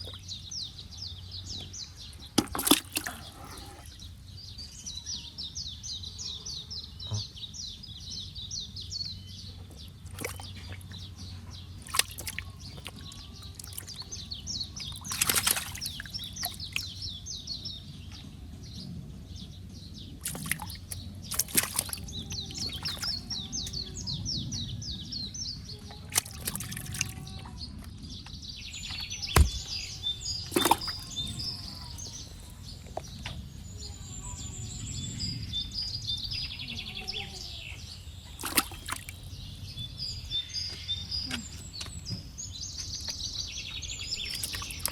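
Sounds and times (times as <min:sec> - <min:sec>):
birds chirping: 0:00.0 - 0:44.9
water sloshing and splashing: 0:02.1 - 0:04.1, 0:10.0 - 0:17.2, 0:20.2 - 0:24.0, 0:25.9 - 0:27.9, 0:28.8 - 0:33.0, 0:38.2 - 0:39.4, 0:44.0 - 0:44.9
sharp knocks: 0:29.4 - 0:29.7.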